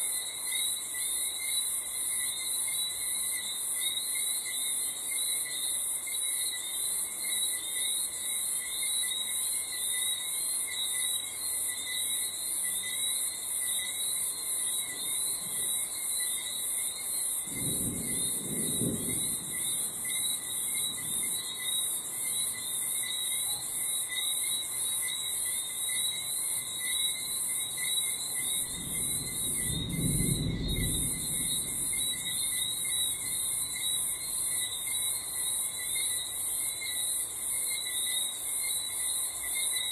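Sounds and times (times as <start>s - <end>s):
crickets chirping: 0.0s - 39.9s
distant thunder rumbling: 17.4s - 21.7s, 28.4s - 34.4s.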